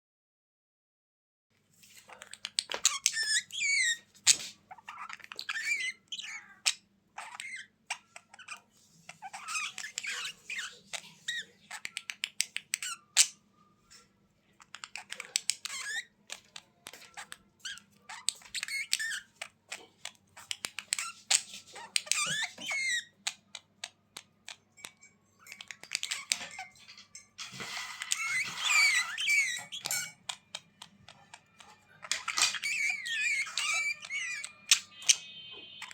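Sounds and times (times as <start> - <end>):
budgerigars chattering: 28.2 - 35.9.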